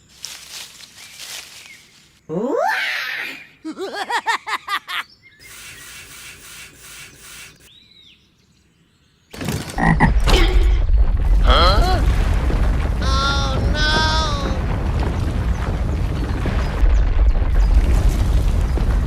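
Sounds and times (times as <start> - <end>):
faint hiss: 5.4 - 7.7.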